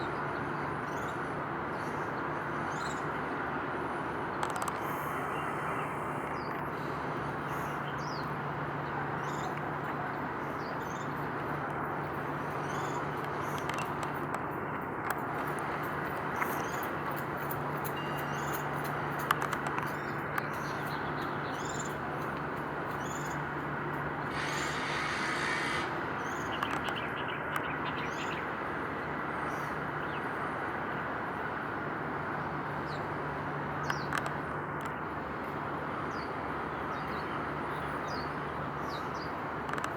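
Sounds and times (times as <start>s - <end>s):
distant rumble: 24.0s - 27.0s
small birds chirping: 24.2s - 28.4s
brief hiss: 24.3s - 26.0s.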